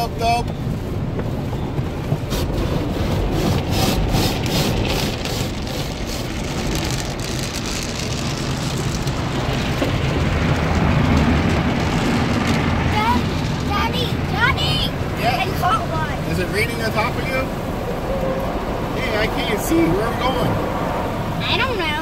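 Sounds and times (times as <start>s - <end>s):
water spraying on car: 0.0s - 22.0s
brushes scrubbing car body: 2.0s - 8.8s.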